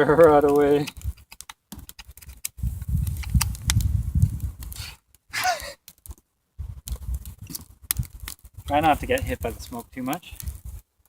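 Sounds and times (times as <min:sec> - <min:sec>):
low rumbling rustle: 0:02.1 - 0:05.0, 0:06.1 - 0:10.9.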